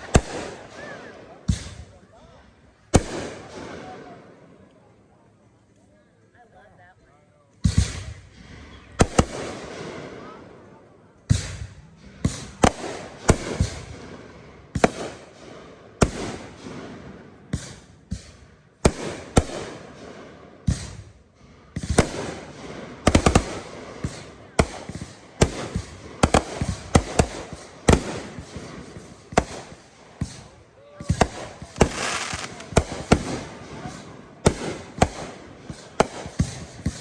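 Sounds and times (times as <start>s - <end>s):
fireworks booming and cracking: 0.0s - 0.8s, 11.3s - 37.0s.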